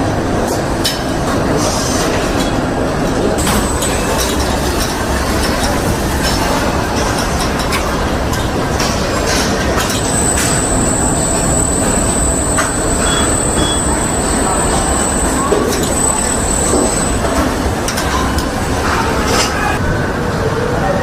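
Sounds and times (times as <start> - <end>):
high-pitched whine: 3.4 - 19.6.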